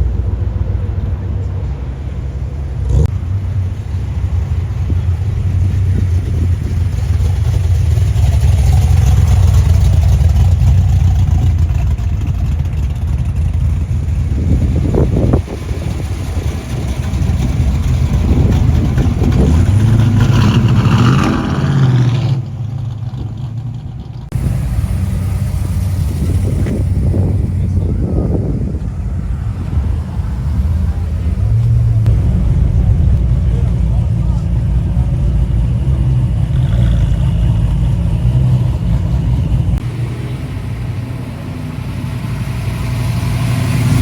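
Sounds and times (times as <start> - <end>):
car engine rumbling and revving: 0.0 - 44.0.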